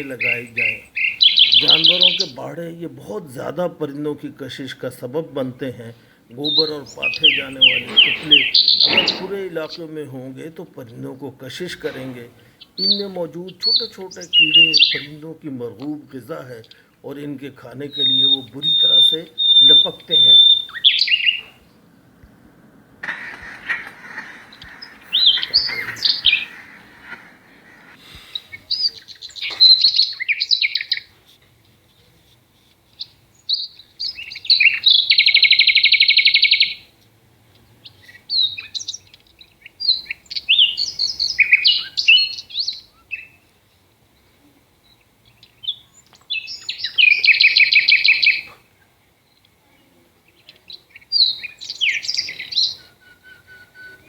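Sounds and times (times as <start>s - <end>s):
bird rapid trill: 0.0s - 3.5s, 6.3s - 10.0s, 11.4s - 16.0s, 17.6s - 31.2s, 33.0s - 37.0s, 37.8s - 43.4s, 45.5s - 48.5s, 50.8s - 54.0s
bird chirping: 0.0s - 54.0s.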